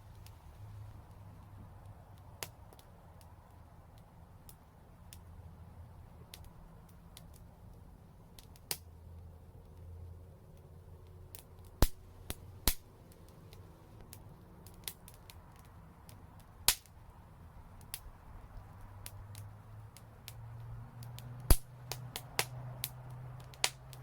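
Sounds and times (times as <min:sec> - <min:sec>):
low rumble of burning: 0:00.0 - 0:24.0
wood fire crackling: 0:00.0 - 0:24.0
fire popping sharply: 0:20.2 - 0:24.0.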